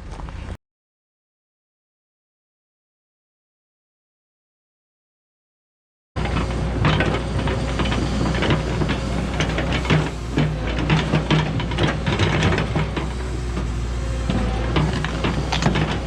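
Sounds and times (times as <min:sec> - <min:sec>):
diesel engine drone: 0:06.2 - 0:16.0
excavator bucket clanks and knocks: 0:06.2 - 0:16.0.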